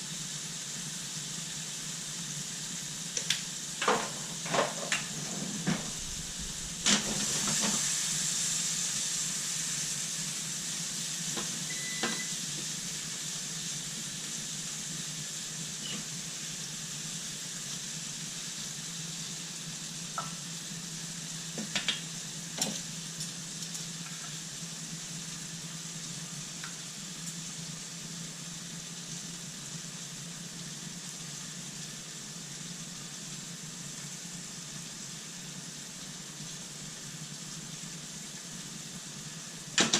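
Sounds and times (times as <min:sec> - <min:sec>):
chicken sizzling on grill: 0:00.0 - 0:39.9.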